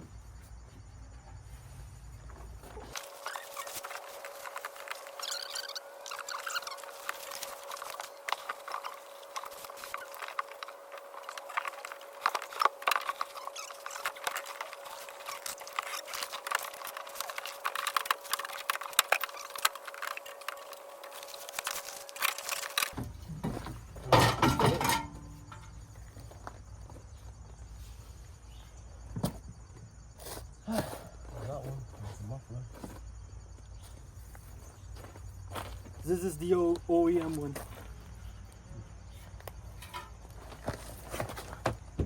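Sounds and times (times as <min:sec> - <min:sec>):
tools being handled: 0:24.0 - 0:25.8, 0:39.7 - 0:40.6.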